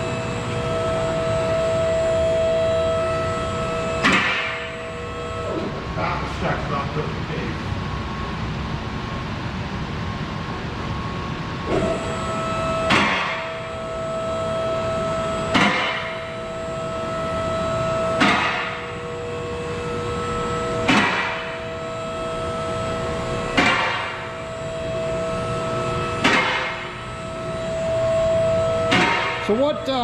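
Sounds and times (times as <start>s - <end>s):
lift motor whining: 0.0s - 5.9s
sharp metal clunks: 4.0s - 4.6s, 12.9s - 13.4s, 15.5s - 16.1s, 18.2s - 18.7s, 20.9s - 21.4s, 23.6s - 24.1s, 26.2s - 26.8s, 28.9s - 29.4s.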